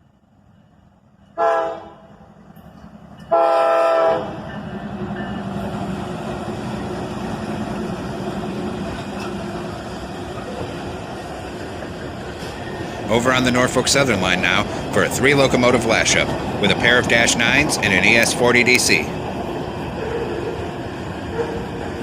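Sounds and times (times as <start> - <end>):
train rumbling past: 0.0 - 22.0
locomotive horn blasts: 1.4 - 2.1, 3.3 - 4.4.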